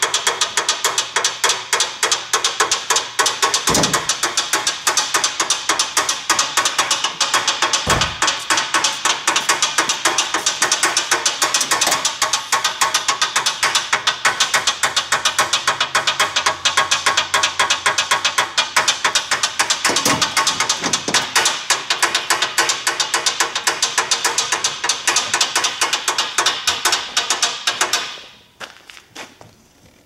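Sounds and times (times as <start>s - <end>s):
rapid engine ticking-knocking: 0.0s - 28.1s
low thump: 7.9s - 8.3s.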